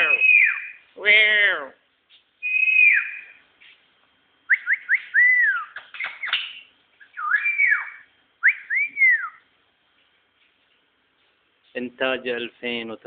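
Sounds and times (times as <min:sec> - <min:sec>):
songbird whistling: 0:00.0 - 0:00.9, 0:02.4 - 0:03.4, 0:04.5 - 0:09.5.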